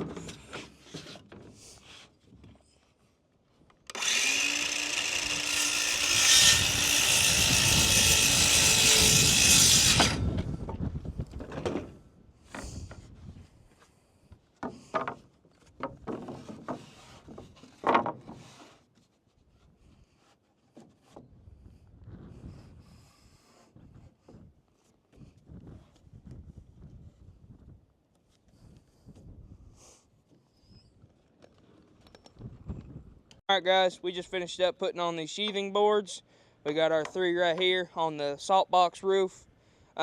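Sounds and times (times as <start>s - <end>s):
power tool working into wood: 3.9s - 10.3s
knocks and taps on lumber: 14.6s - 18.4s.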